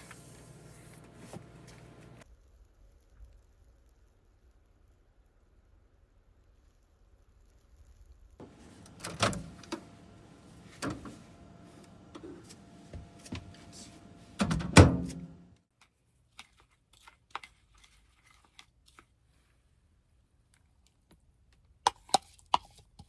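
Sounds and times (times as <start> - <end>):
faint hum: 8.4 - 15.6.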